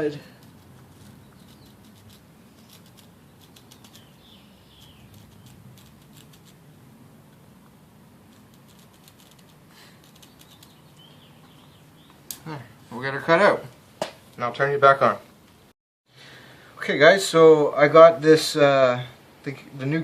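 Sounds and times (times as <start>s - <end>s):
scratching and clicking on cork: 0.4s - 6.6s, 8.3s - 10.8s.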